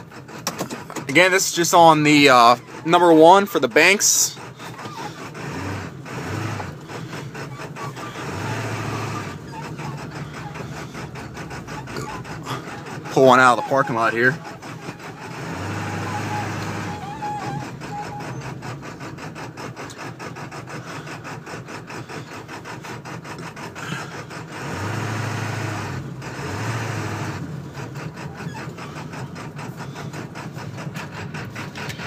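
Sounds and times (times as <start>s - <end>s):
diesel engine clatter: 0.0s - 32.0s.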